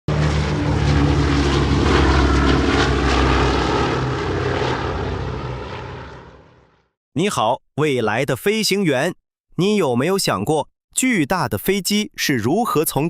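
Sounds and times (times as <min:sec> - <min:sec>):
aircraft engine drone: 0:00.1 - 0:06.9.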